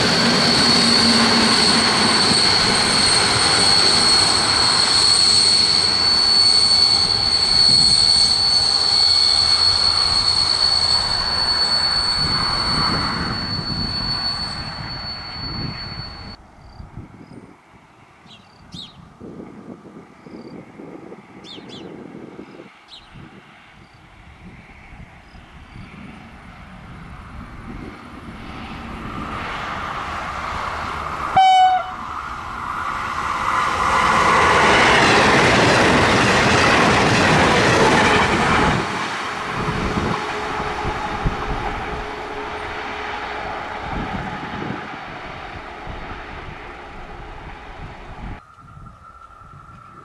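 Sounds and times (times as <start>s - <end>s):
train wheel and track noise: 0.0s - 17.6s, 19.2s - 50.0s
train horn blast: 31.3s - 32.2s, 39.3s - 44.8s.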